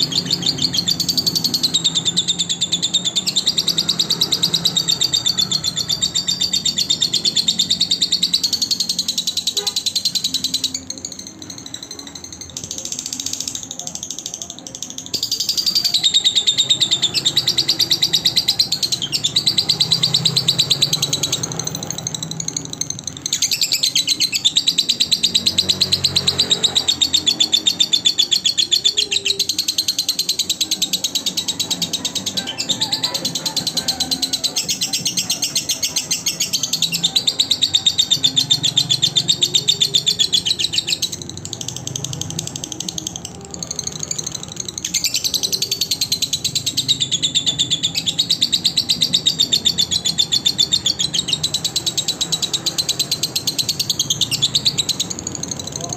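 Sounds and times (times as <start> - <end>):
lovebird chattering chirps: 0.0 - 55.9.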